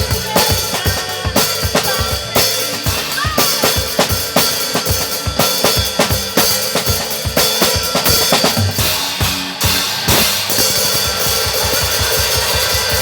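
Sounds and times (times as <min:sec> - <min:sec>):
recorded worship song: 0:00.0 - 0:07.3
cymbal crash: 0:00.0 - 0:13.0
drum kit playing: 0:00.0 - 0:13.0.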